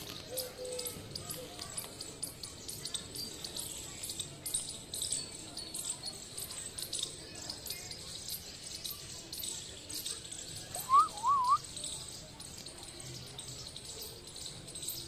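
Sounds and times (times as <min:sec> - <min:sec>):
short high chirps: 0:10.8 - 0:11.6
wavering whistle: 0:10.8 - 0:11.6.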